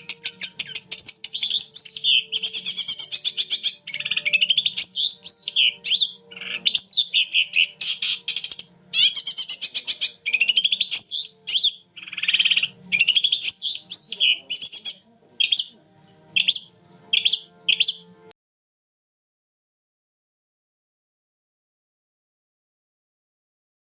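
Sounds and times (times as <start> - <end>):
shrike singing trills and whistles: 0.0 - 15.8, 16.4 - 18.1.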